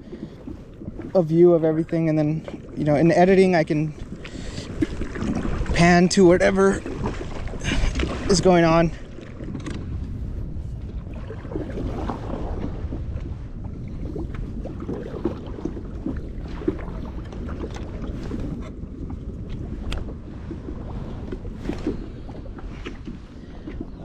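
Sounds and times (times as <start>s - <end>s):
water around a kayak: 0.0s - 24.0s
wind on microphone: 0.0s - 24.0s.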